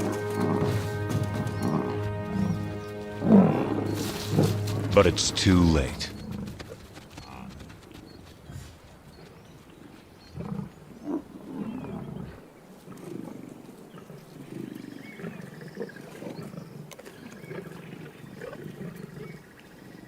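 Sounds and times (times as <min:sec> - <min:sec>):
lions growling: 0:03.2 - 0:04.9.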